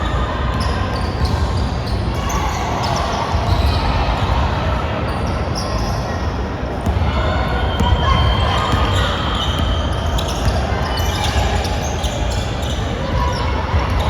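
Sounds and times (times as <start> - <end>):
basketball bouncing on court: 6.8 - 7.1, 7.8 - 11.6.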